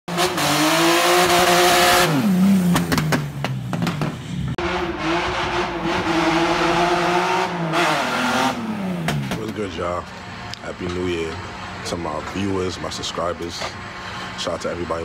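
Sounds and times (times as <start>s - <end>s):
car engine at high revs: 0.1s - 9.7s
exhaust pops and crackles: 2.7s - 4.2s.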